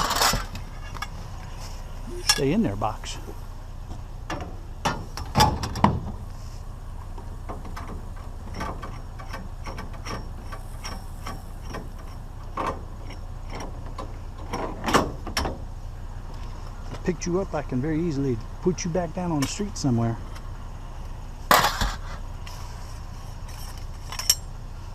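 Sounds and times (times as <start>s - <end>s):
scrap items knocking and clunking: 0.0s - 1.1s, 21.5s - 22.2s
steady low hum: 0.0s - 24.9s.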